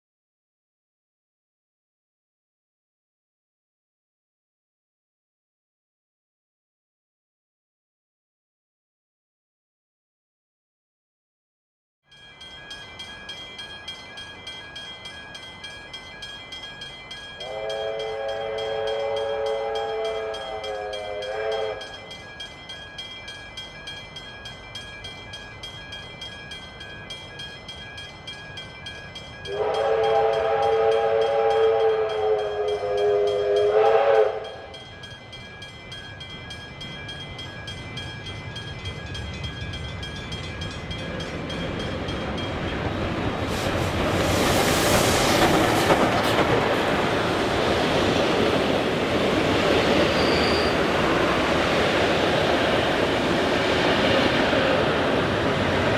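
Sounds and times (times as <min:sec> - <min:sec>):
train noise: 0:12.1 - 0:55.9
steam locomotive whistle: 0:17.4 - 0:22.0, 0:29.5 - 0:34.8, 0:49.9 - 0:51.3.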